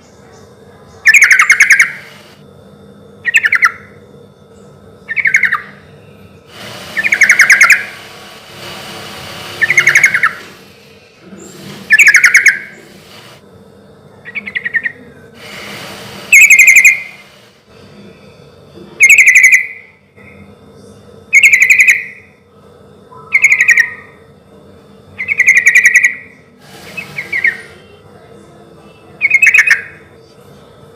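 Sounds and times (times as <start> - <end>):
bulbul singing bubbly phrases: 14.2 - 15.1, 29.0 - 30.1.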